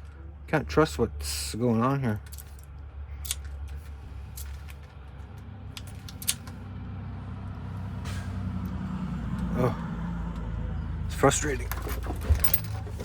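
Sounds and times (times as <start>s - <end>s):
steady low hum: 0.0s - 11.5s
small metal lock parts clicking: 2.2s - 4.9s, 5.8s - 6.6s, 11.7s - 13.0s.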